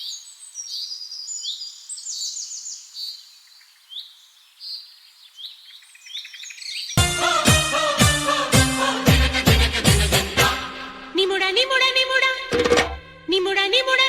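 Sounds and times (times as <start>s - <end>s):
birds chirping and trilling: 0.0s - 7.0s.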